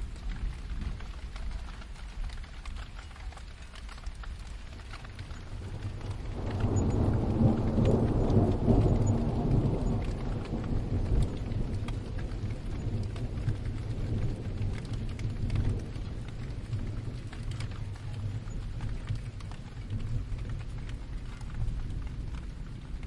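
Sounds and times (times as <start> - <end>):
raindrops ticking on surface: 0.0 - 23.0
steady rain: 0.0 - 23.0
thunder rolling: 5.0 - 23.0.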